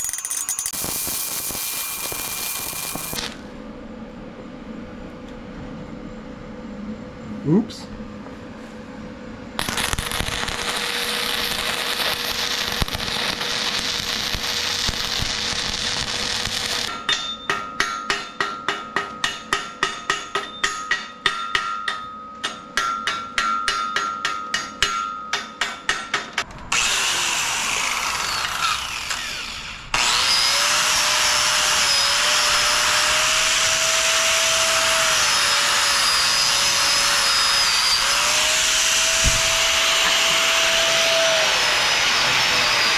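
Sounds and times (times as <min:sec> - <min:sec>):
angle grinder whining on steel: 0:00.0 - 0:03.4, 0:09.6 - 0:16.9, 0:26.7 - 0:42.9.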